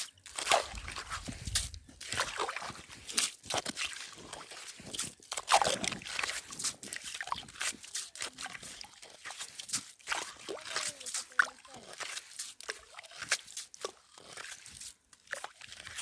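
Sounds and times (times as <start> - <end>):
slush sloshing and crunching on ice: 0.0 - 16.0.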